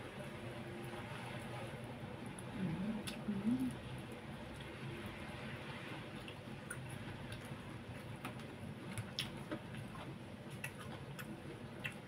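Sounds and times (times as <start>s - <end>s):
person chewing food: 6.1s - 12.0s.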